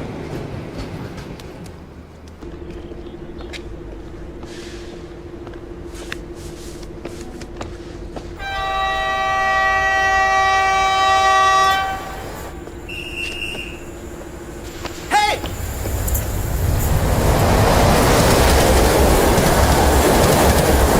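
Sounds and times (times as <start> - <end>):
train humming: 0.0 - 20.9
train horn: 8.4 - 13.8.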